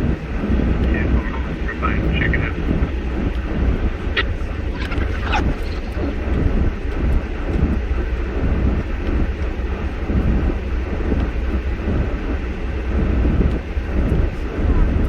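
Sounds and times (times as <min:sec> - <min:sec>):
vehicle engine and tyres rumbling: 0:00.0 - 0:15.0.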